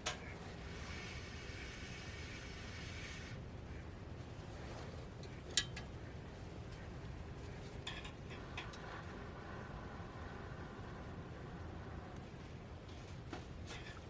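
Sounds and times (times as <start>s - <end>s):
low steady rumble: 6.2s - 13.8s.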